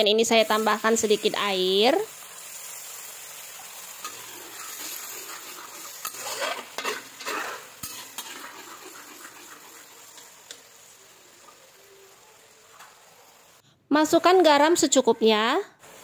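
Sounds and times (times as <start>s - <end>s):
spice paste sizzling in wok: 0.0s - 16.0s
spatula scraping wok: 2.1s - 11.8s.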